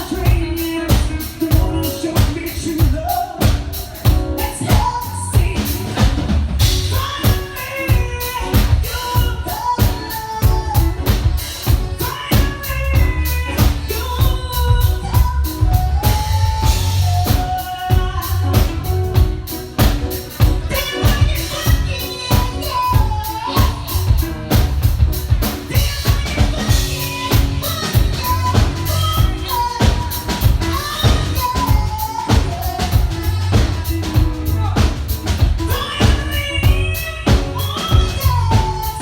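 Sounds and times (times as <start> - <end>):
bass line: 0.0 - 39.0
drum kit beat: 0.0 - 39.0
person singing: 0.0 - 39.0.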